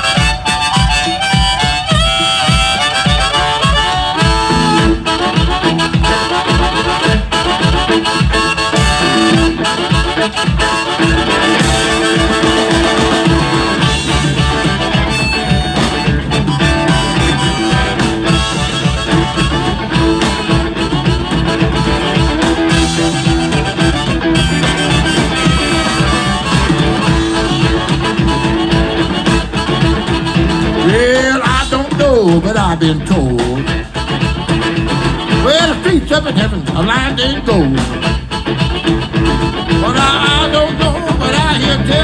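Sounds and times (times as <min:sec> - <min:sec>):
harmonica playing held notes: 0:00.0 - 0:32.3, 0:33.7 - 0:36.8, 0:37.5 - 0:42.0
driving drum beat: 0:00.0 - 0:42.0
guitar: 0:00.0 - 0:42.0.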